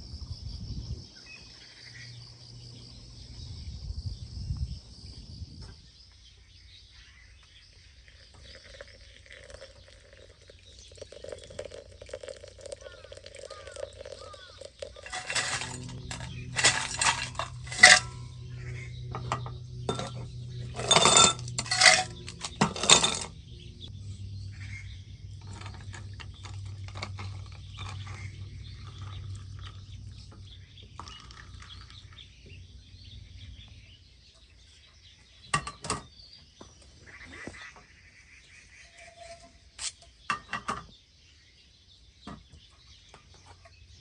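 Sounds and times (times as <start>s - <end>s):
metal cookware clinking and clattering: 14.8s - 23.4s, 25.4s - 29.2s, 35.5s - 36.1s.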